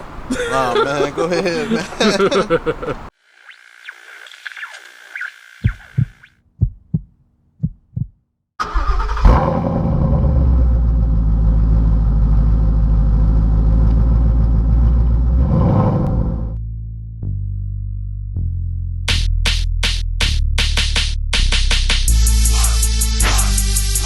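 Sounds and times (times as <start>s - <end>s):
short dull thumps: 5.6s - 8.2s
car engine starting and idling: 8.6s - 16.5s.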